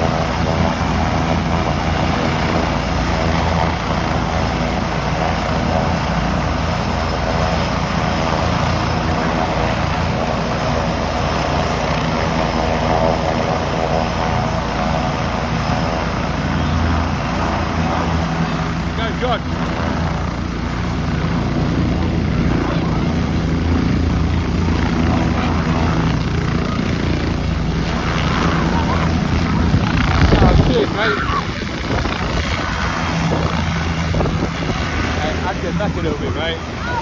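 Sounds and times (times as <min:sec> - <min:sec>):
helicopter engine and rotor: 0:00.0 - 0:37.0.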